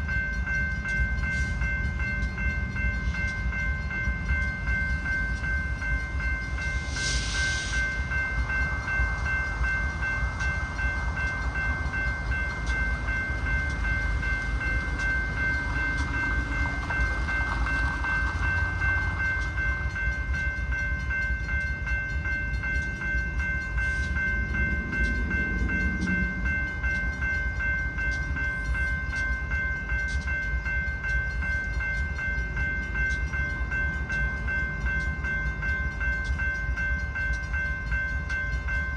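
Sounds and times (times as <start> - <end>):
crossing bell ringing: 0.0 - 38.9
freight train rumble: 0.0 - 38.9.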